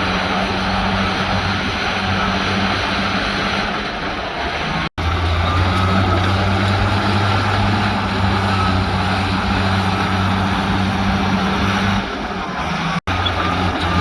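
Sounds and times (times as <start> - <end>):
diesel engine running under load: 0.0 - 14.0.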